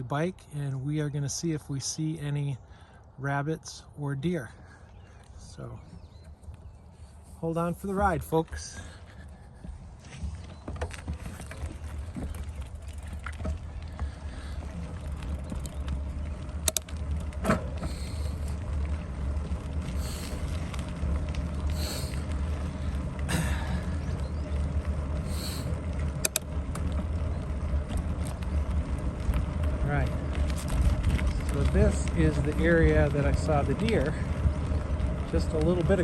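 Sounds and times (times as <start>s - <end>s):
bike tyres and air rumble: 0.0s - 36.0s
bike clicks and knocks: 9.6s - 36.0s.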